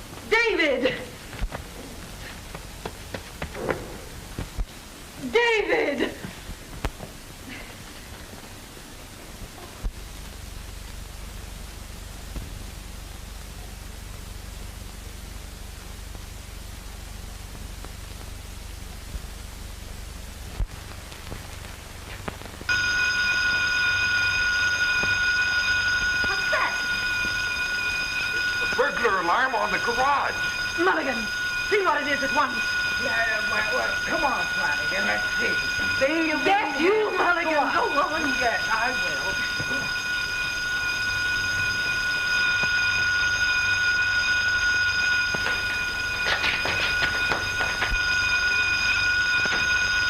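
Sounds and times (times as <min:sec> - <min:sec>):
film soundtrack hiss: 0:00.0 - 0:50.0
burglar alarm bell ringing: 0:22.7 - 0:50.0.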